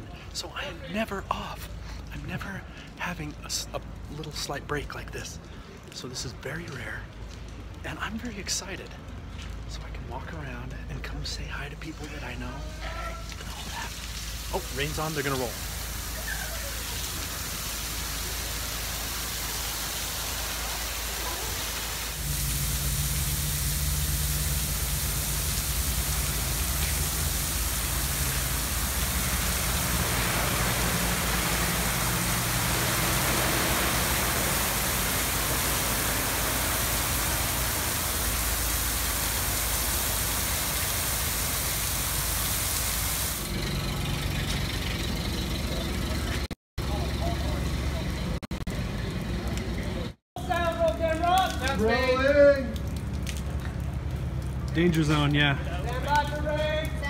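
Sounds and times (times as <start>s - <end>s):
artificial rain hissing: 0.0s - 43.7s
low engine hum: 22.2s - 50.2s.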